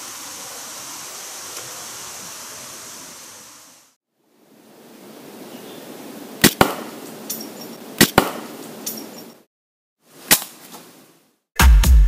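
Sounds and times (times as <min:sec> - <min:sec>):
outdoor background noise: 0:00.0 - 0:11.5
slingshot shot cracks: 0:06.4 - 0:07.0, 0:08.0 - 0:08.6, 0:10.3 - 0:10.6.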